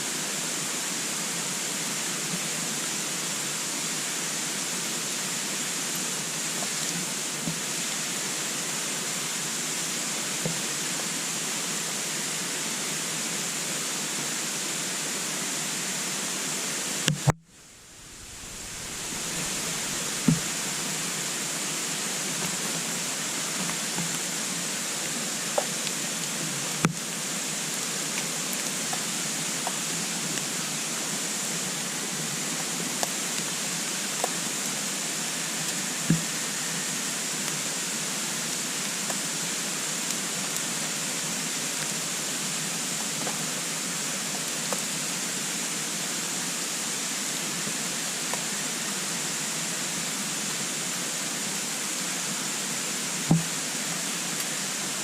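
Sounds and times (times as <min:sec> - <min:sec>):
fire crackles and pops: 0:17.1 - 0:21.5
wood fire rushing: 0:17.6 - 0:21.7.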